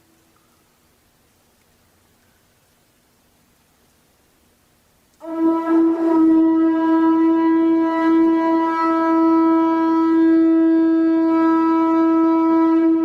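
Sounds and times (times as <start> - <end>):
conch shell trumpet note: 5.2 - 13.0.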